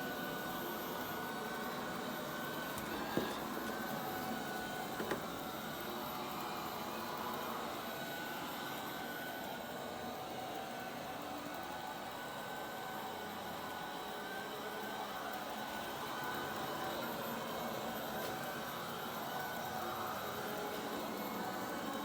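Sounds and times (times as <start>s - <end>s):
robot vacuum whirring: 0.1s - 9.4s.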